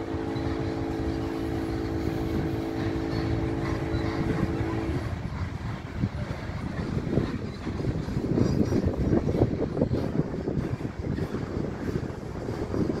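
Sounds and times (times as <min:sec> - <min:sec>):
multi-tone hum: 0:00.0 - 0:06.6
train wheels rumbling on rail: 0:00.0 - 0:13.0.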